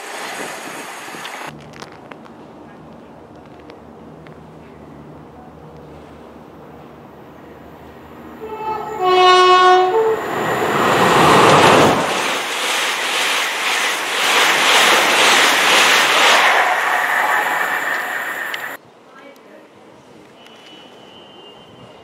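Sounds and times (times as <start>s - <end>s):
train passing at speed: 0.0s - 1.5s, 2.3s - 19.0s, 19.8s - 22.0s
two-tone train horn: 8.4s - 10.4s, 20.4s - 22.0s.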